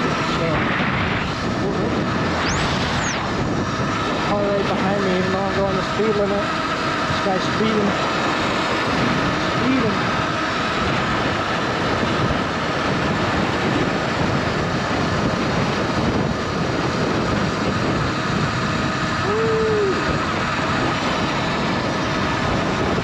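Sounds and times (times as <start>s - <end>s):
faint electric motor whine: 0.0s - 23.0s
wind rushing over microphone: 0.0s - 23.0s
short hum: 0.9s - 4.4s.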